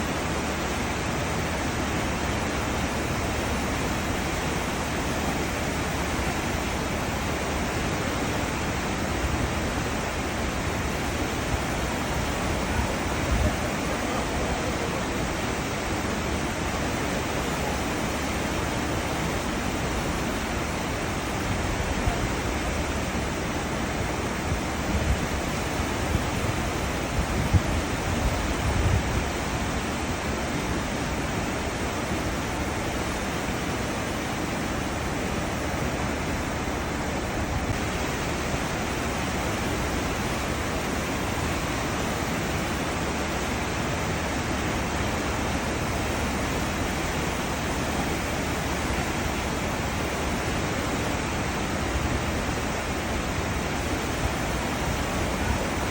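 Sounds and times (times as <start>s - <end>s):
churning water of ship wake: 0.0s - 55.9s.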